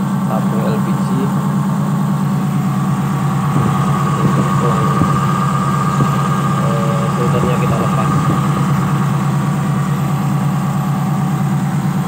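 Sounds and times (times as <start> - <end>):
car engine idling: 0.0 - 12.0
steady high whine: 0.0 - 12.0
man talking: 0.3 - 1.4, 3.7 - 5.4, 6.6 - 8.8.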